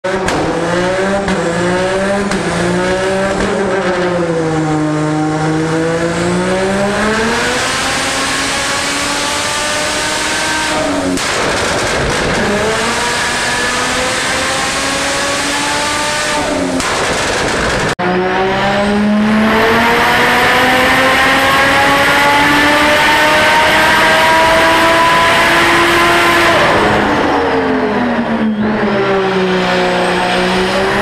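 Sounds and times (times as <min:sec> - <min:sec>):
car engine revving on dyno: 0:00.0 - 0:31.0
exhaust crackling pops: 0:11.1 - 0:12.6, 0:16.8 - 0:18.0.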